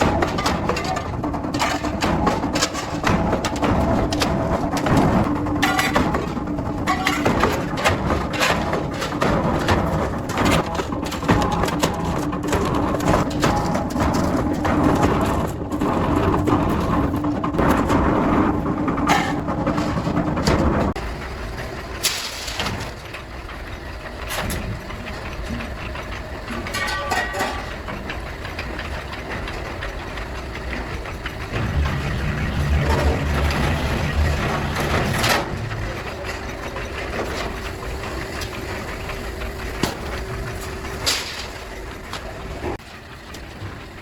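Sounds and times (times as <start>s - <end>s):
motor running steadily: 23.0s - 44.0s.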